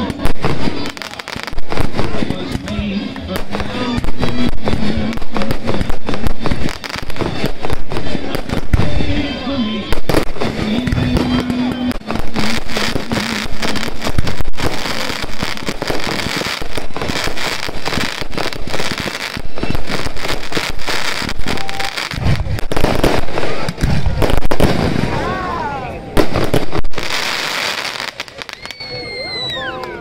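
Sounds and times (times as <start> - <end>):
crackling firework stars: 0.0 - 30.0
firework shells bursting: 10.0 - 25.0.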